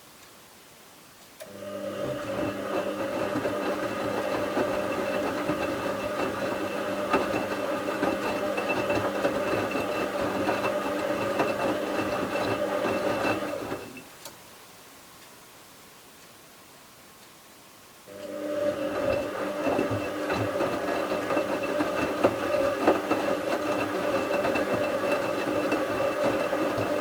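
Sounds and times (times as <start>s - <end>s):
washing machine motor hum: 1.4s - 14.0s, 18.1s - 27.0s
laundry rattling in drum: 1.7s - 14.0s, 18.5s - 27.0s.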